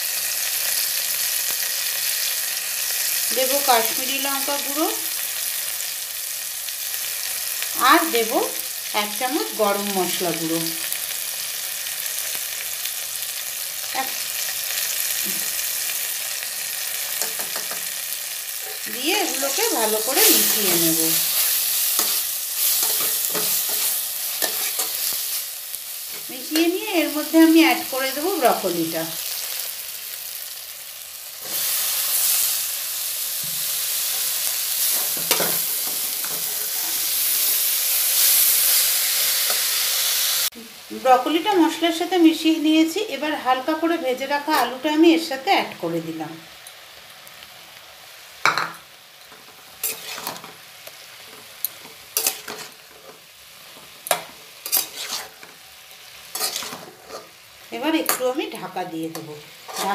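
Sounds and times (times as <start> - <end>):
vegetables sizzling in oil: 0.0 - 59.9
spatula scraping a pan: 18.6 - 26.7, 33.4 - 37.4, 49.3 - 50.6, 51.2 - 57.4, 59.1 - 59.9.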